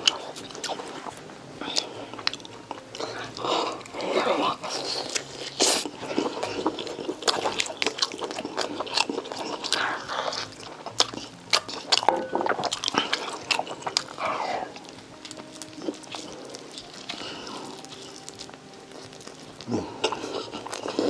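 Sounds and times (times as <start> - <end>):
mouth chewing and smacking: 0.0 - 21.0.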